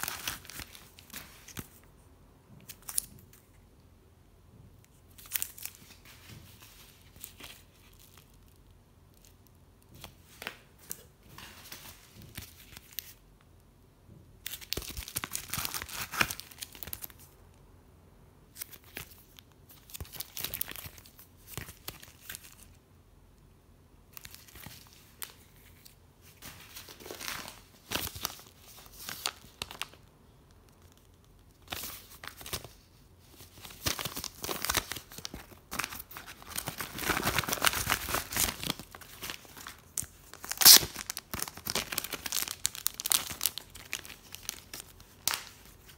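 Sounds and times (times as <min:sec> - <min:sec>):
plastic packaging crinkling: 0:00.0 - 0:01.8, 0:14.4 - 0:17.3, 0:18.6 - 0:22.7, 0:30.8 - 0:45.9.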